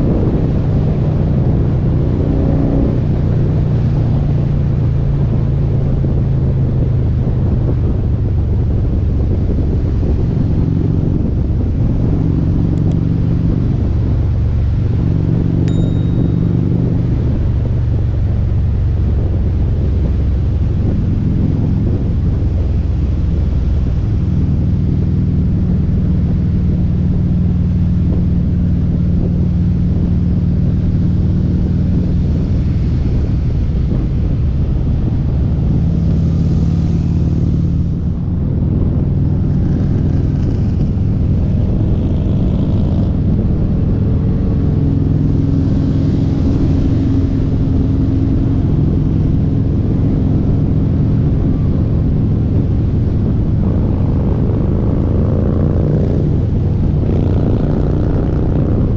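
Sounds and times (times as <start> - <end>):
motorcycle engine with loud exhaust: 0.0 - 58.9.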